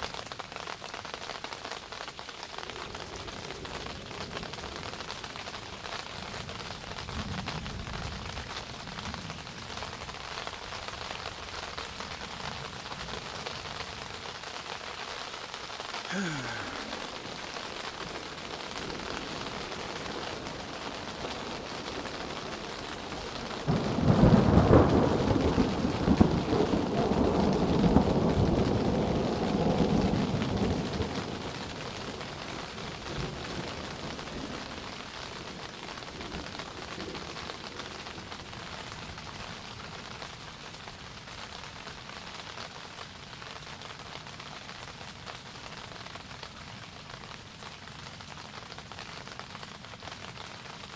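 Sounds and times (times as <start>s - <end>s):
steady rain falling: 0.0s - 50.9s
thunder clap rumbling: 23.6s - 31.4s.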